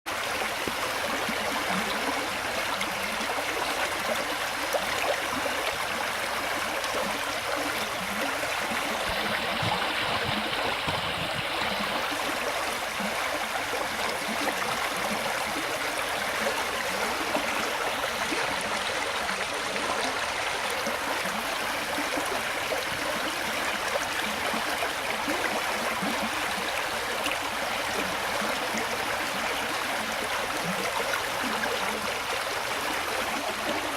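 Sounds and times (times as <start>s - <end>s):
brook babbling over stones: 0.1s - 33.9s.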